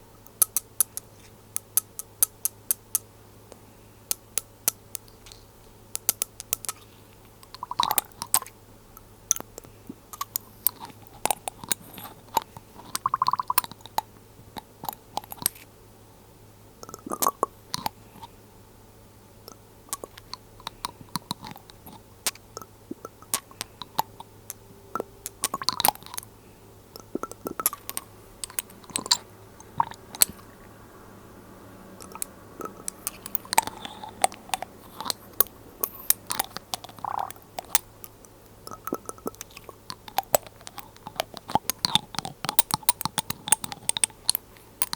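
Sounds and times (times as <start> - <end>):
glass bottles clicking and clinking: 40.2 - 44.9.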